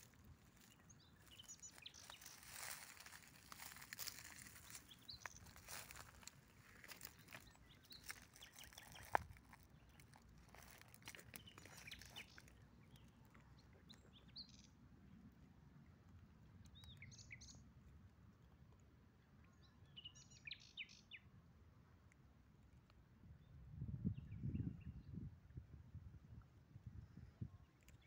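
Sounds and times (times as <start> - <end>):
soft crackling and rustling: 0.0 - 14.1
faint birds chirping: 0.0 - 21.3.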